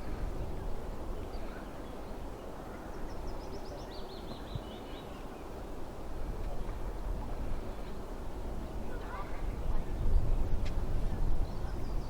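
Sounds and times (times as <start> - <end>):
songbird trill: 0.0 - 5.6, 11.3 - 12.0.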